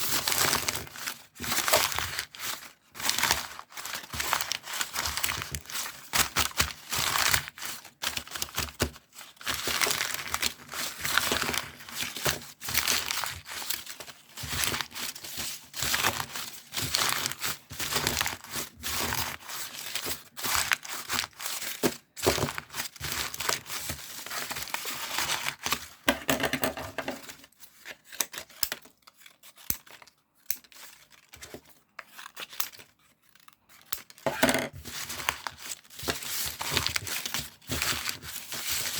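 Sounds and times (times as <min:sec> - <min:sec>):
crinkly material rustling and tearing: 0:00.0 - 0:26.1, 0:27.2 - 0:38.9.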